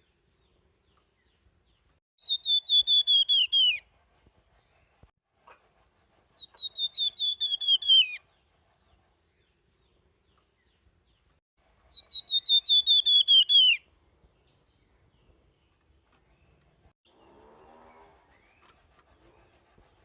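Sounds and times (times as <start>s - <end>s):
songbird whistling: 2.2s - 3.8s, 6.4s - 8.2s, 11.9s - 13.9s.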